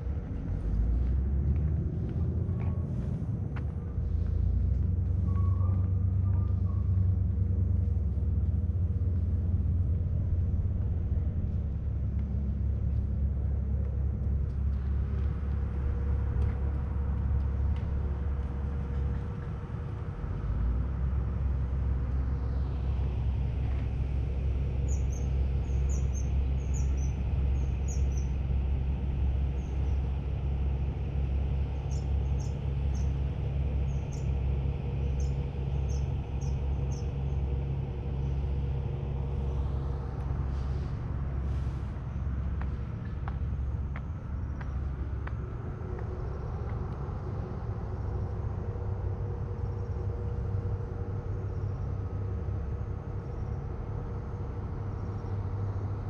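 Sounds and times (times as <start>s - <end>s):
steady low rumble: 0.0s - 56.0s
small bird chirps: 24.8s - 28.3s, 35.1s - 37.1s.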